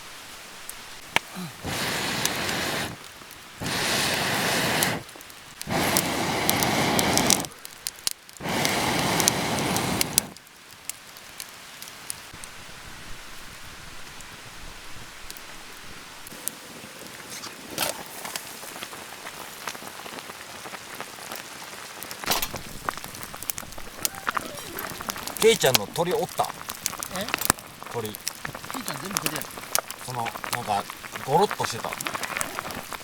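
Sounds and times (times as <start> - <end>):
chicken sizzling in a pan: 1.3 - 3.0, 18.1 - 33.0
fat popping: 3.6 - 10.4, 22.3 - 33.0.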